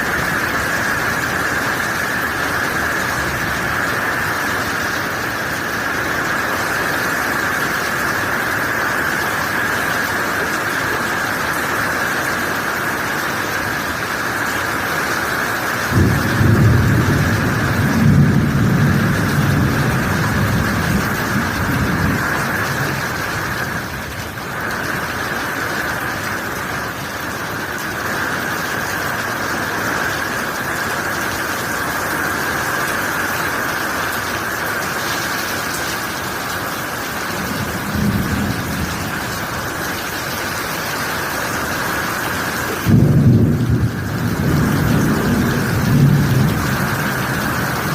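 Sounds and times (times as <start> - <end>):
heavy rain falling: 0.0 - 47.9
low rumble of thunder: 15.9 - 25.4, 37.2 - 39.8, 42.8 - 47.9.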